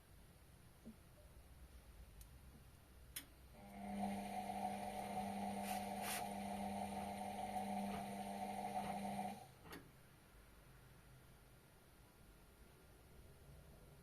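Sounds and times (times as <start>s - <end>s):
washing machine electrical hum: 0.9s - 10.0s.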